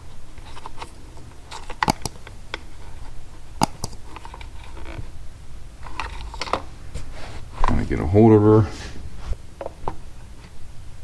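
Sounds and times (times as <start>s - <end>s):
sharp clicks: 1.5s - 2.3s, 3.6s - 4.2s
hands clicking and tapping plastic: 1.8s - 2.2s, 3.6s - 4.0s.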